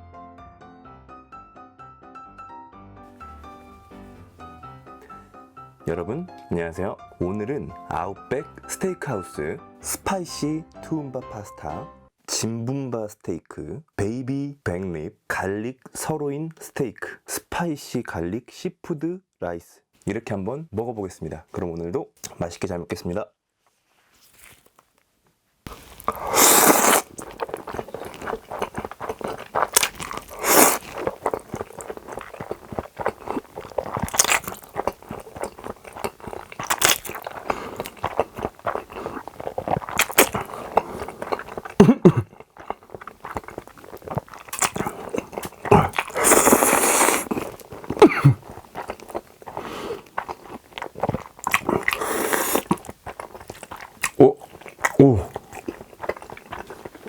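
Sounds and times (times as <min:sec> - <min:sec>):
chewing and biting: 0:24.3 - 0:24.9, 0:25.7 - 0:57.0.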